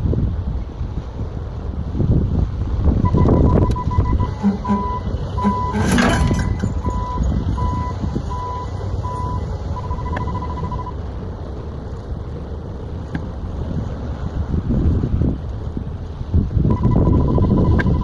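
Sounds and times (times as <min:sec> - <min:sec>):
vehicle engine running: 0:01.3 - 0:16.4
reversing alarm beeping: 0:03.0 - 0:11.0, 0:16.7 - 0:18.0
brief clatter: 0:04.3 - 0:07.1.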